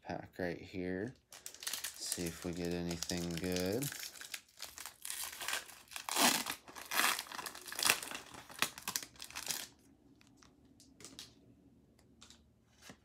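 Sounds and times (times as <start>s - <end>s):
foil wrapper crinkling: 1.3s - 11.2s.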